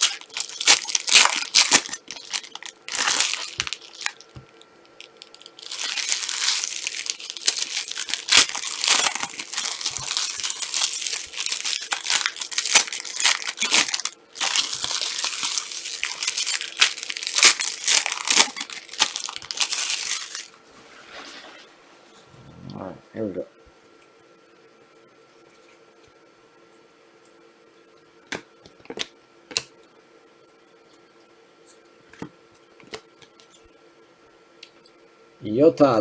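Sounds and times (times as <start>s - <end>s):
plastic wrappers crinkling and tearing: 0.0s - 20.6s.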